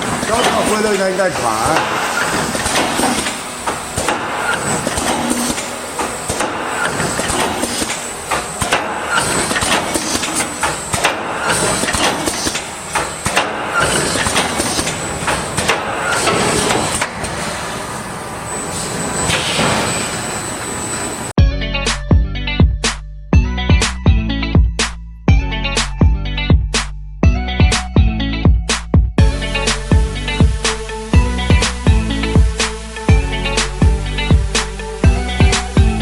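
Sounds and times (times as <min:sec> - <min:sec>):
sharp knocks and clatter: 0:00.0 - 0:17.1
welding machine running: 0:00.0 - 0:21.3.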